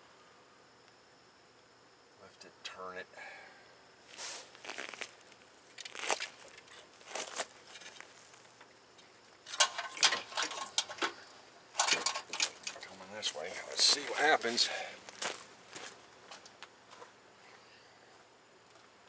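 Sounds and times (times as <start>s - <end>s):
tools clicking and scraping: 9.5s - 11.2s, 11.8s - 12.9s.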